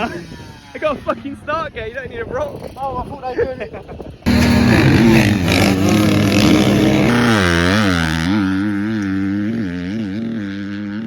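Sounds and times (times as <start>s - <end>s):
motocross bike engine revving: 4.3s - 11.0s.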